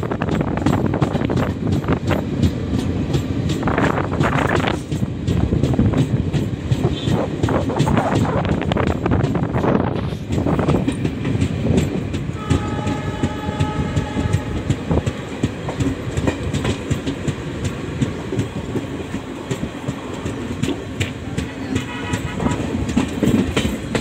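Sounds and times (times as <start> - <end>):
train wheels clattering: 0.0 - 24.0
train horn: 12.3 - 14.8, 21.5 - 23.0.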